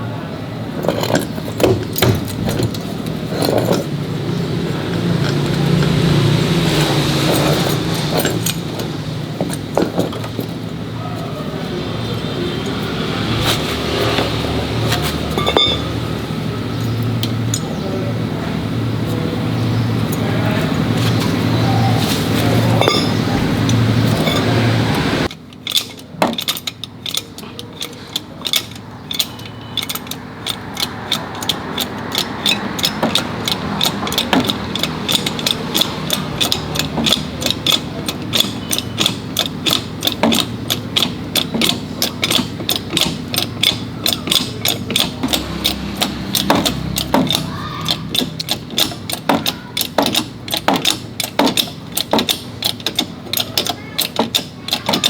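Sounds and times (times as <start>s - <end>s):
loud mechanical hum: 0.0s - 55.0s
ratchet wrench clicking: 0.8s - 11.1s, 25.2s - 55.0s.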